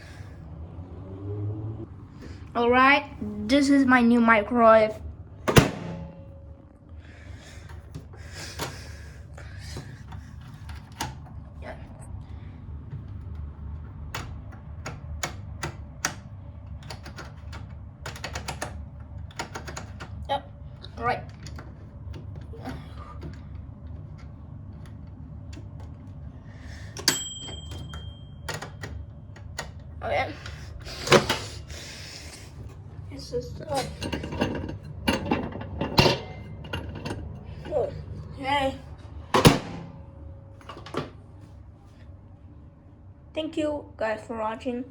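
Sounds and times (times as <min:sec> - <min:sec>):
microwave oven humming: 0:00.0 - 0:44.9
microwave door latch clunking: 0:05.5 - 0:06.3, 0:39.3 - 0:40.0.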